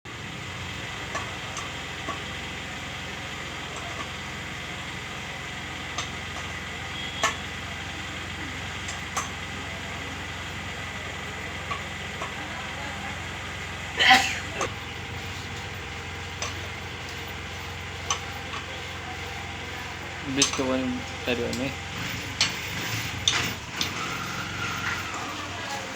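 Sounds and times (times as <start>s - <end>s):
steady low hum: 0.1s - 25.9s
metal tools clicking and tapping: 7.2s - 7.4s, 11.7s - 12.4s, 14.6s - 25.5s.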